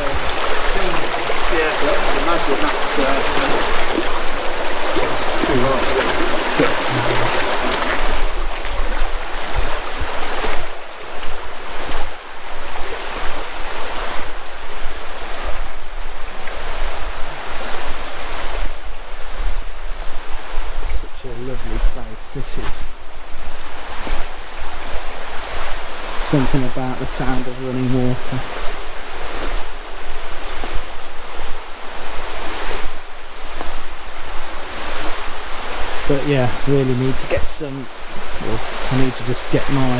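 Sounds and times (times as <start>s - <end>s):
river water rushing over stones: 0.0s - 18.8s, 23.3s - 39.9s.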